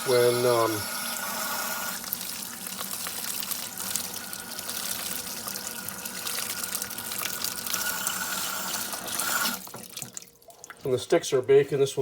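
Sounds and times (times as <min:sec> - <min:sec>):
water running from a tap: 0:00.0 - 0:11.0
small water splashes: 0:09.0 - 0:11.0.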